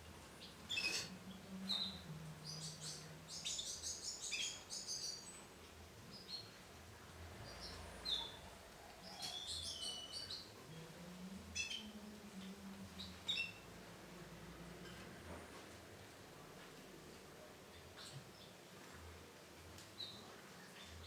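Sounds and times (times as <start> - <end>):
canary chirping: 0.3 - 6.6, 7.4 - 10.8, 12.9 - 13.7.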